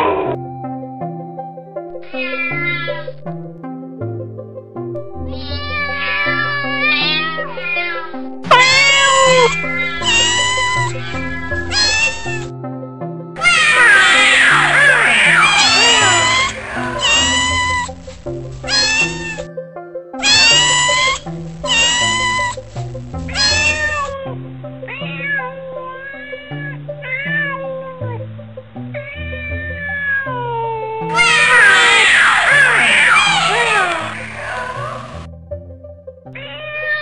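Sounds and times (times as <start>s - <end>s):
background music: 0.0s - 37.0s
cats meowing: 5.3s - 12.5s, 13.4s - 19.5s, 20.2s - 28.2s, 29.0s - 35.3s.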